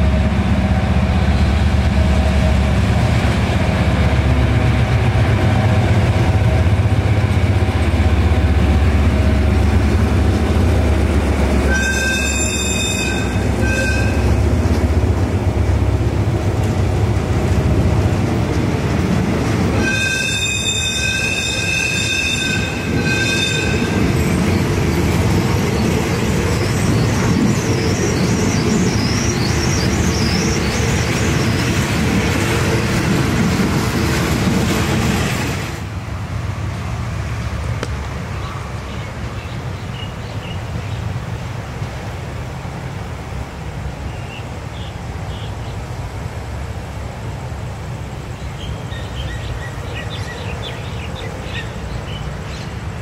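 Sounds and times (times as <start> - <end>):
train coaches rolling rattle: 0.0 - 39.4
high shrill tone: 11.7 - 14.3.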